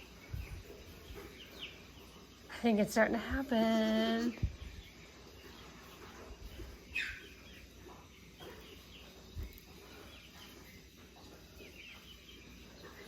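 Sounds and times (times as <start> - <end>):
faint bird chirps: 3.8 - 13.0.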